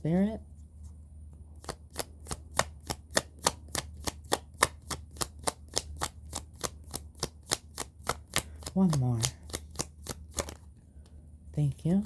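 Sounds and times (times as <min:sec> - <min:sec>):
cards being shuffled: 0:01.6 - 0:10.7.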